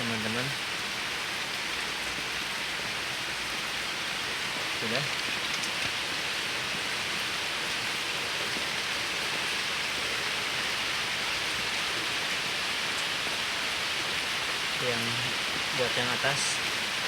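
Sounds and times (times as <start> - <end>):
steady hiss: 11.8 - 17.0.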